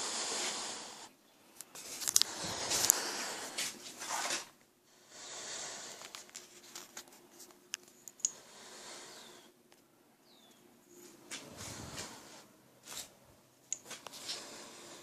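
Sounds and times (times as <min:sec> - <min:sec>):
soft rustling: 0:05.9 - 0:08.2, 0:10.9 - 0:14.5.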